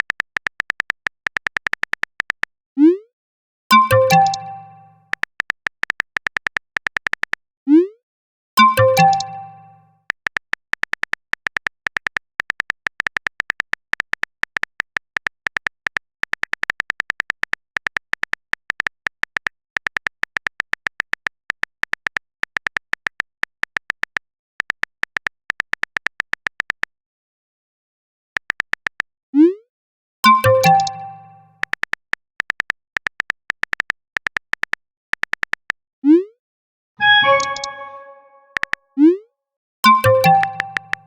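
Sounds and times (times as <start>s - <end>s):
phone keyboard clicks: 0.0s - 2.5s, 4.0s - 7.4s, 8.8s - 26.9s, 30.4s - 35.8s, 39.9s - 41.0s.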